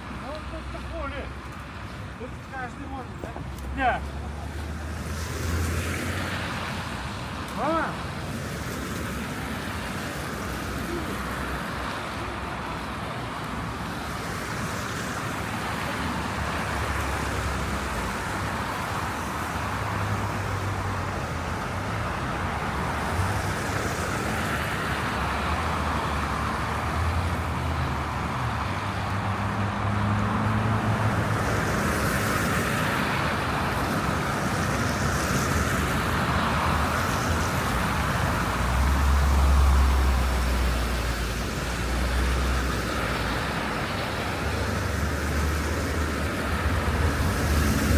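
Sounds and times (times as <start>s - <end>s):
cars driving on snowy roads: 0.0s - 47.9s.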